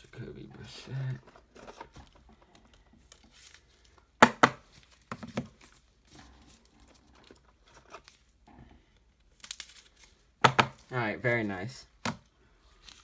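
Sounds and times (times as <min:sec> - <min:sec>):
plastic card sleeves rustling and clacking: 0:00.6 - 0:08.4, 0:09.3 - 0:13.0.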